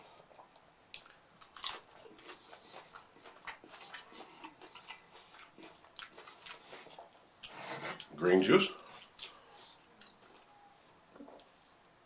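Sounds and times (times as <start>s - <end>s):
crunching and chewing taco: 0.1s - 8.2s.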